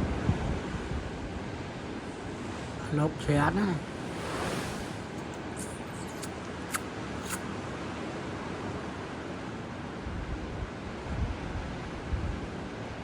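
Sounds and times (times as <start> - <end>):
ocean surf: 0.0 - 7.2
wind: 0.0 - 13.0.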